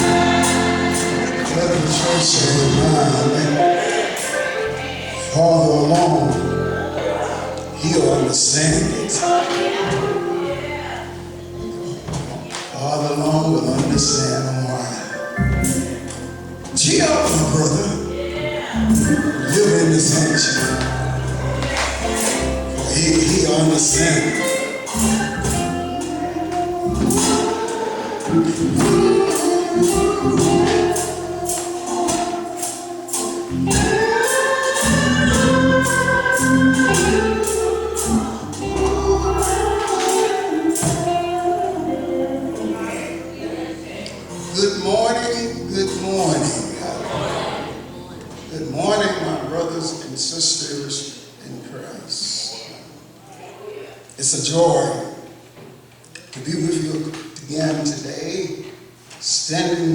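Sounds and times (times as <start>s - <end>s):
tambourine beat: 0.0s - 2.8s, 18.8s - 41.9s
instrumental accompaniment: 0.0s - 49.5s
man singing gospel: 0.0s - 52.6s.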